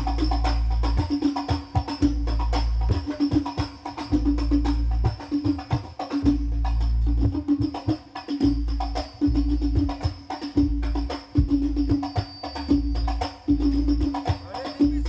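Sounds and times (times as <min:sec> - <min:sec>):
frame drums playing fast rhythm: 0:00.0 - 0:15.0
jingles: 0:00.0 - 0:15.0
deep bass booms: 0:02.0 - 0:03.1, 0:06.3 - 0:07.6, 0:08.4 - 0:12.0.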